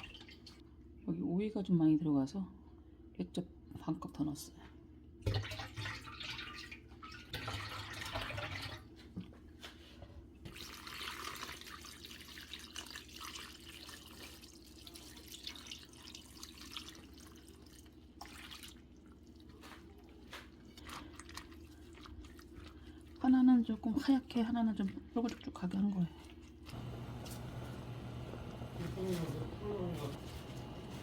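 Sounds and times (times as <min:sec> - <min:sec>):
water running and splashing: 0:10.5 - 0:23.3
steady low hum: 0:26.7 - 0:31.0.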